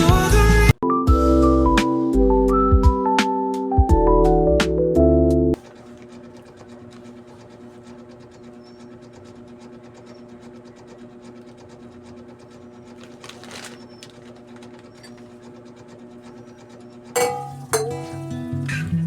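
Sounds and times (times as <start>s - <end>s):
small electric motor humming and ticking: 5.6s - 17.2s
brief rattle: 17.2s - 18.8s.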